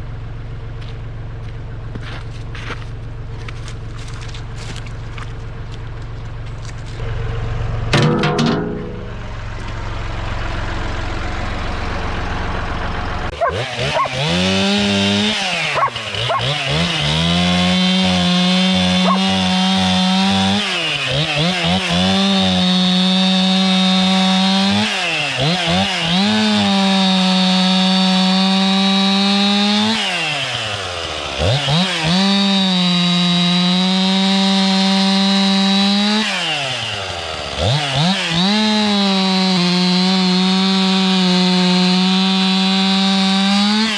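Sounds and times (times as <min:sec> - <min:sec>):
low engine rumble: 0:00.0 - 0:13.4
chainsaw revving: 0:10.1 - 0:43.9.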